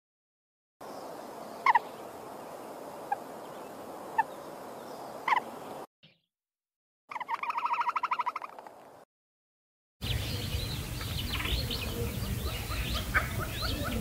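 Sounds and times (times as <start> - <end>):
steady background hiss: 0.8 - 5.8, 10.0 - 14.0
bird calling: 1.6 - 2.1, 3.0 - 6.2, 7.1 - 8.6, 10.0 - 14.0.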